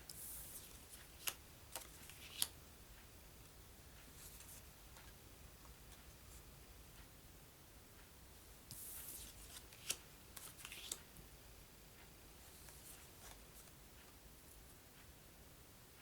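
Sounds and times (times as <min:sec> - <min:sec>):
paper rustling: 0:08.8 - 0:11.0.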